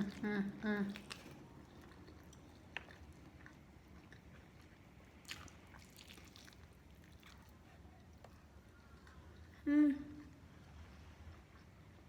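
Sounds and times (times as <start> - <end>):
crisp crackle of food: 0.0 - 7.6
chewing fried chicken: 0.0 - 12.0.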